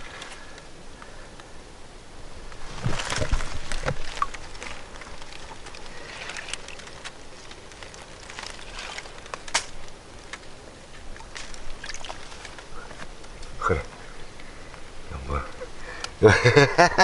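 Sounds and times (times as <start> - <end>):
faint steady hiss: 0.0 - 17.0
hands splashing in water: 11.2 - 12.5.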